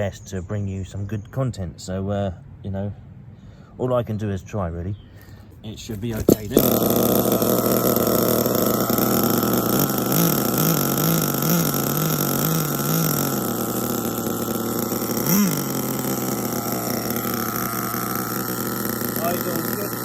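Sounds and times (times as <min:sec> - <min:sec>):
small nitro engine running: 0:05.9 - 0:20.0.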